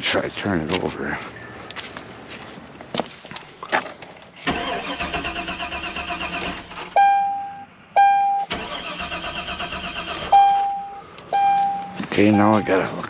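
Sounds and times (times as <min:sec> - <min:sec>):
starter cranking car engine: 0:04.4 - 0:06.9, 0:08.5 - 0:10.4.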